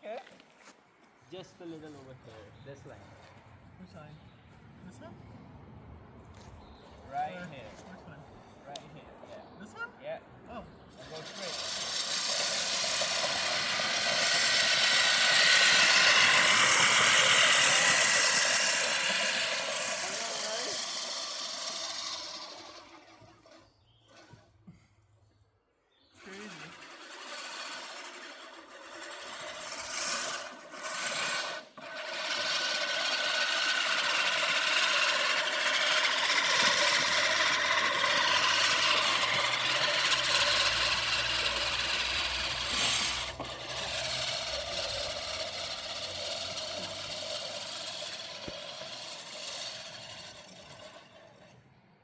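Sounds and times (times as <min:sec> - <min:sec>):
lawn mower cutting grass: 0:10.9 - 0:24.9, 0:26.1 - 0:52.0.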